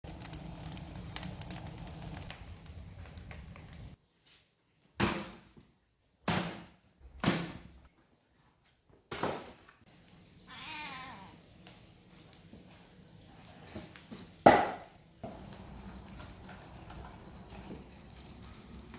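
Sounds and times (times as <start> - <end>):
cat meowing: 10.5 - 11.4.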